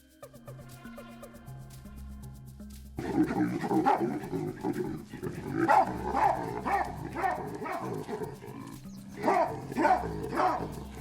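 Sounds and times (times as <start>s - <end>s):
baboons barking and calling: 3.0s - 11.0s.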